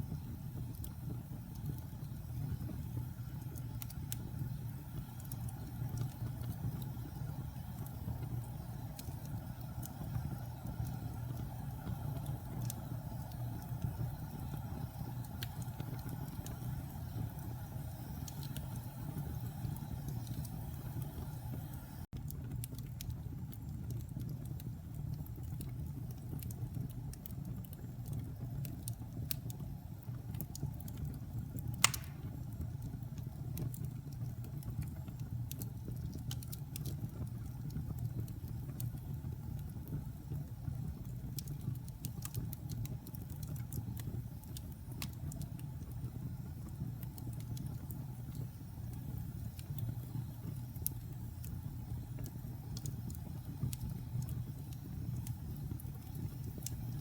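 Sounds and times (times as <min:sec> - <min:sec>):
fire low rumble: 0:00.0 - 0:57.0
wood fire crackling: 0:00.0 - 0:57.0
sharp pop from fire: 0:31.8 - 0:32.6.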